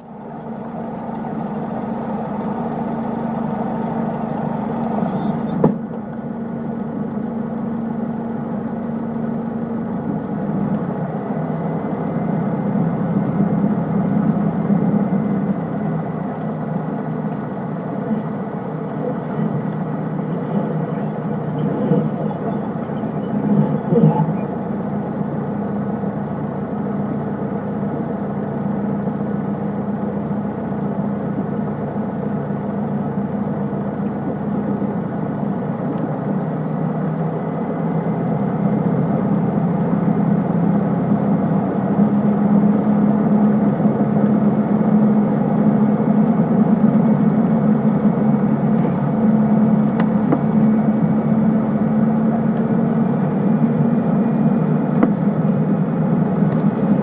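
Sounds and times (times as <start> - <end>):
propeller plane engine: 0.0 - 57.0.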